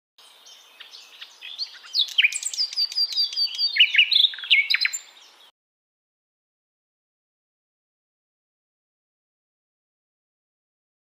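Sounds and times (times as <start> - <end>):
bird song and chirping: 0.2 - 5.5.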